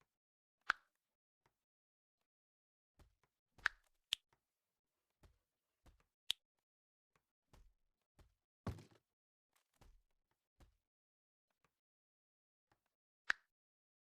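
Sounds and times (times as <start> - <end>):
dull thud: 8.7 - 9.0.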